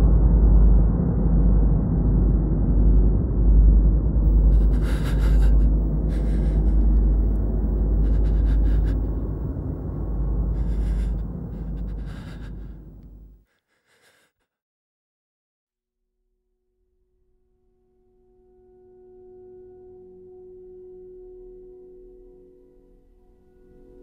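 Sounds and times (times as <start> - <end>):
low rumbling drone: 0.0 - 13.4
heavy gasping breaths: 4.3 - 14.3.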